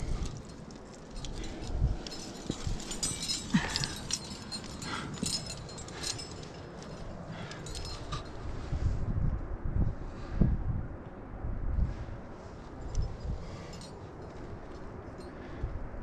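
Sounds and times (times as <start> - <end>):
climbing gear clinking: 0.0 - 8.7, 12.5 - 15.6
wind rumble on microphone: 0.0 - 16.0.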